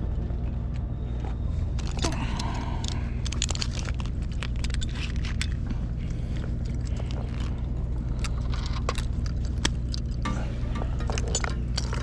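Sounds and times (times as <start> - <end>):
engine hum: 0.0 - 12.0.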